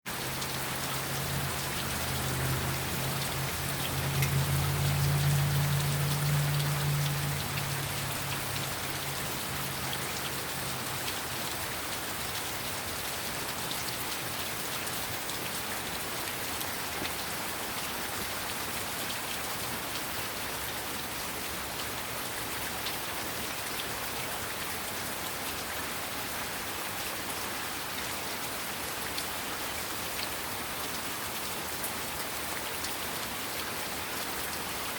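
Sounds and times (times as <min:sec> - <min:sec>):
heavy rain pattering: 0:00.1 - 0:34.9.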